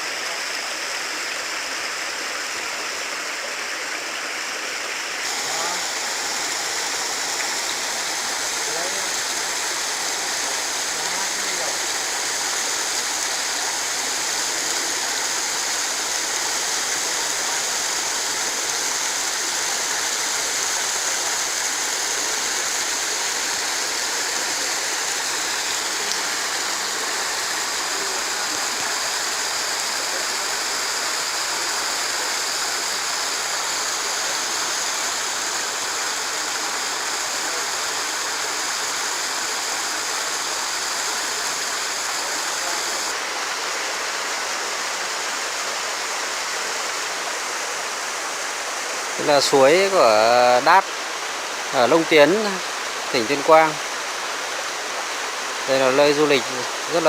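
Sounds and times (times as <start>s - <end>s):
water rushing over rocks: 0.0s - 57.0s.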